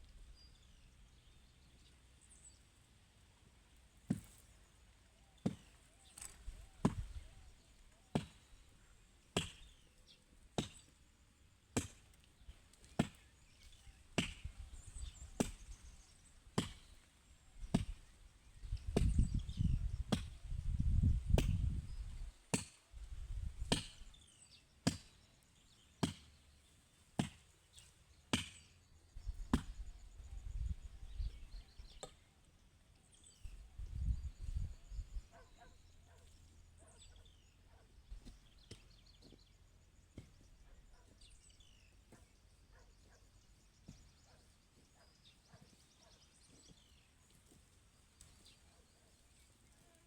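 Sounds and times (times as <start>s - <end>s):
hand tool chopping: 5.4s - 7.2s, 9.4s - 9.8s, 11.8s - 12.1s, 14.2s - 14.6s, 16.6s - 17.0s, 23.7s - 24.1s, 26.0s - 26.4s, 27.2s - 28.7s.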